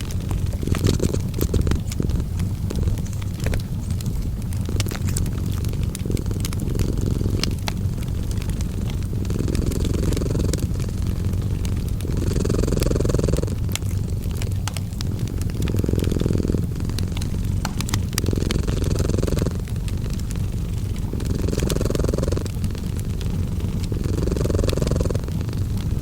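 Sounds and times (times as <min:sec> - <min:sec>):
cat purring: 0:00.0 - 0:26.0
fireplace crackling: 0:00.0 - 0:26.0.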